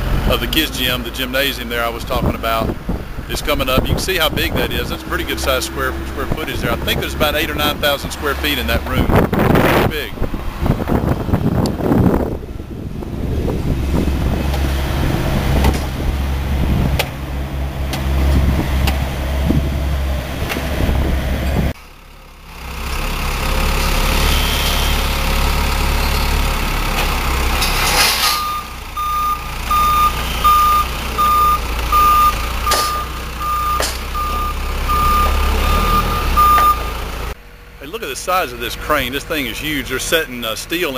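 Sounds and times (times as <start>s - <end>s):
diesel engine rumbling: 0.0s - 40.9s
back-up alarm beeping: 28.4s - 36.9s.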